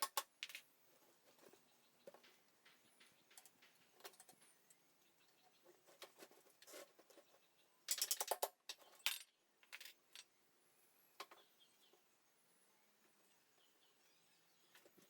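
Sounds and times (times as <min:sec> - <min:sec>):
small metal objects clinking: 0:07.9 - 0:10.3.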